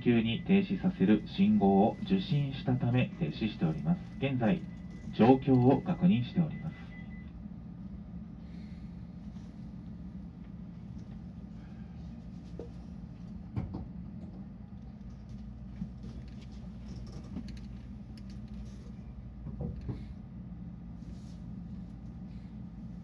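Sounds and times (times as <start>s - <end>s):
train cabin low hum: 0.0s - 23.0s.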